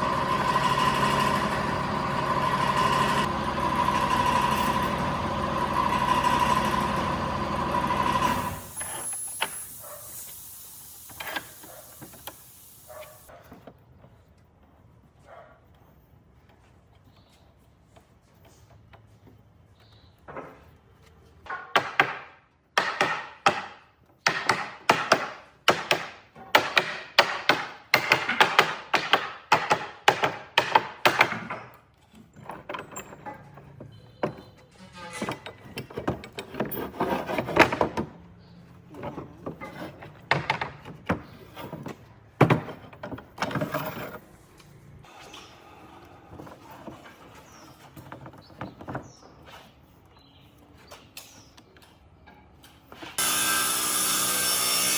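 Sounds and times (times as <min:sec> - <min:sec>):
hand tool working wood: 0:34.4 - 0:38.2.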